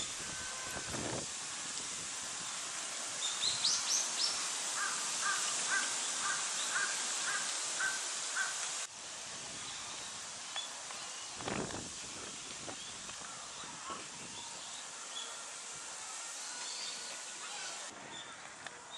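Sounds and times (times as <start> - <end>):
background hiss: 0.0 - 18.9
crow cawing: 4.8 - 8.6.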